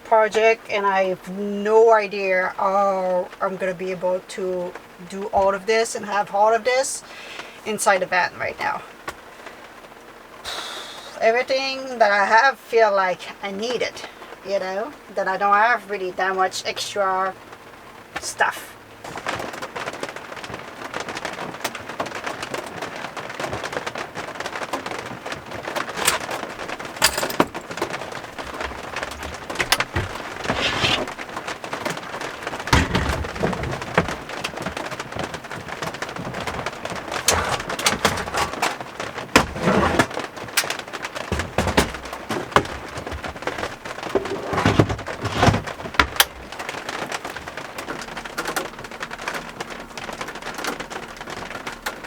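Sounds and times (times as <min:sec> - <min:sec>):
heavy rain on a vehicle roof: 0:00.0 - 0:52.0.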